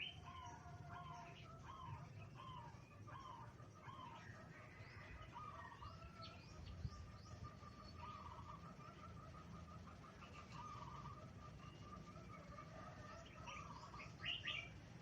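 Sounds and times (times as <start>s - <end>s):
small birds chirping: 0.0s - 15.0s
dove cooing: 7.9s - 14.8s.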